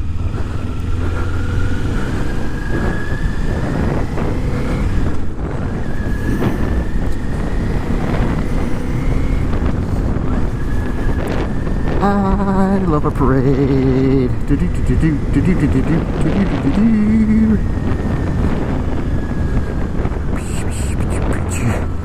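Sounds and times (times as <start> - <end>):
thin engine whine rising in pitch: 0.0 - 20.3
wind noise: 0.0 - 22.0.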